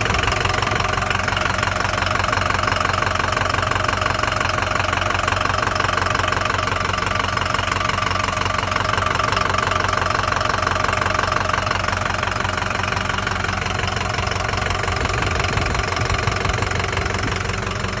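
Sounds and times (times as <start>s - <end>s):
diesel engine knocking: 0.0s - 18.0s.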